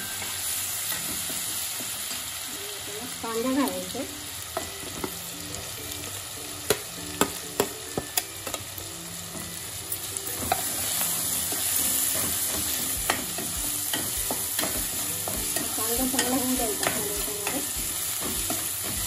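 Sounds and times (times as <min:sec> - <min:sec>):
oil sizzling in a pan: 0:00.0 - 0:19.0
onions frying and stirred: 0:00.0 - 0:19.0
steel spoon clinking: 0:10.4 - 0:19.0.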